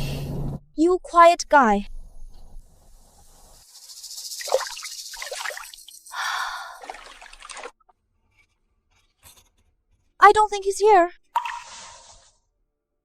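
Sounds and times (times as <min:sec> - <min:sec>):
water splashing and trickling: 0:03.6 - 0:07.8.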